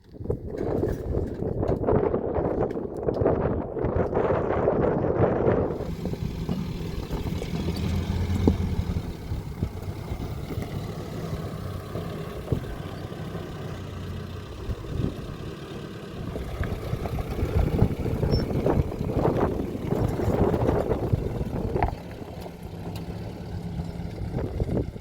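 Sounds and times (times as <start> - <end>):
vehicle engine running: 5.6 - 25.0.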